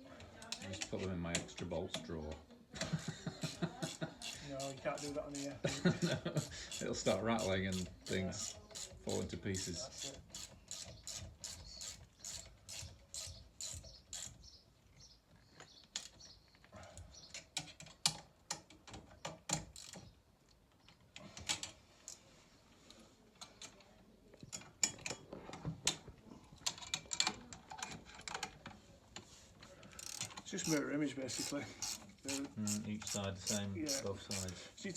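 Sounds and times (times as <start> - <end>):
metal clicks and knocks: 17.3 - 21.8, 24.4 - 28.8
ratchet spanner clicking: 30.0 - 34.6.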